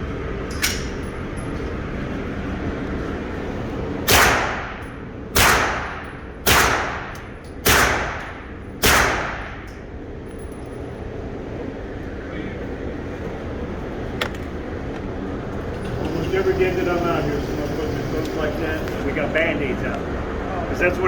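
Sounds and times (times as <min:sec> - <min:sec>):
pistol shots with echo: 0:04.1 - 0:09.7.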